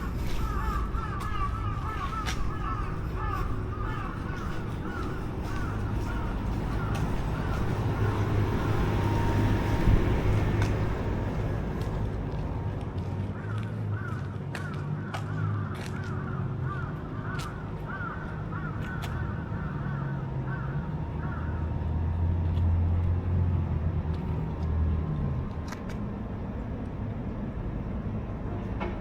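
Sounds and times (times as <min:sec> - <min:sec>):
vehicle passing: 0:00.0 - 0:28.5
street traffic: 0:00.0 - 0:29.0.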